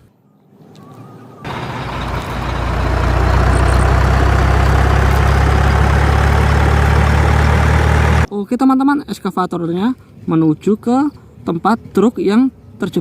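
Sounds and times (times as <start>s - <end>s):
toy excavator engine drone: 1.5s - 8.3s.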